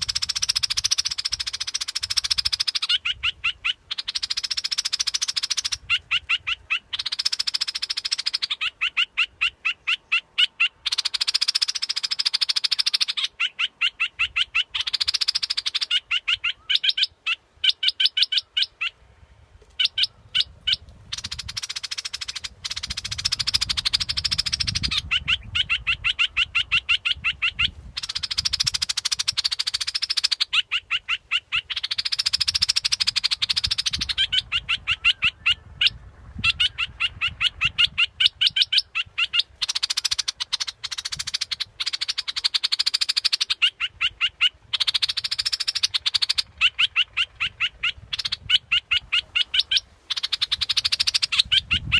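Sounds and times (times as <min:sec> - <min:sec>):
rapid short bird chirps: 0:00.0 - 0:18.9
harsh buzzy bird trills: 0:00.0 - 0:19.0, 0:19.8 - 0:51.9.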